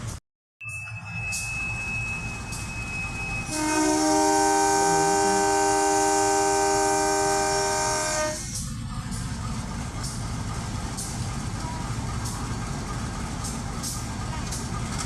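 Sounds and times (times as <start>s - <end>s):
train rumbling past: 0.0s - 15.0s
train horn chord: 3.5s - 8.6s
wheels clacking over rail joints: 8.6s - 15.0s.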